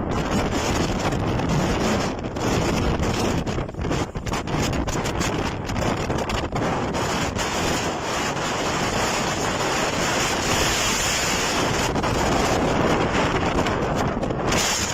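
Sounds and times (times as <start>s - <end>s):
storm wind buffeting microphone: 0.0s - 14.9s.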